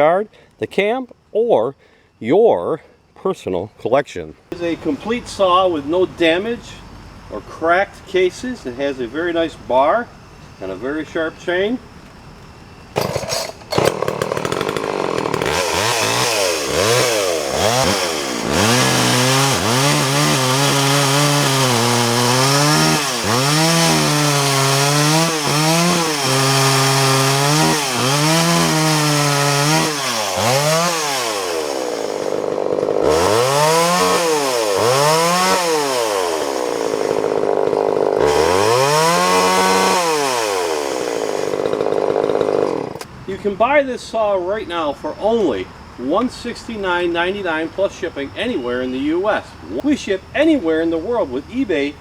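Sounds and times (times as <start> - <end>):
chainsaw revving: 13.0 - 43.1.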